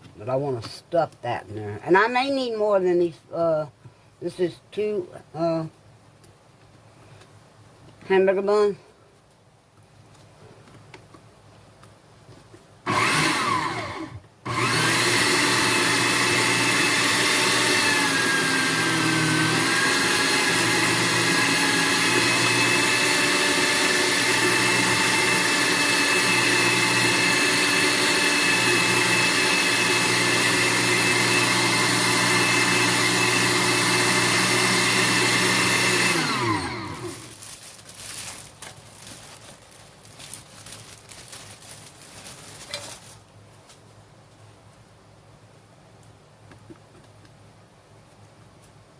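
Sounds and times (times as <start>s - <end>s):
electric meat grinder motor running: 12.9s - 37.3s.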